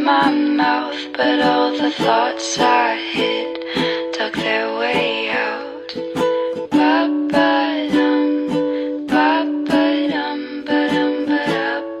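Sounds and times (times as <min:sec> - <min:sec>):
strummed acoustic string chords: 0:00.0 - 0:12.0.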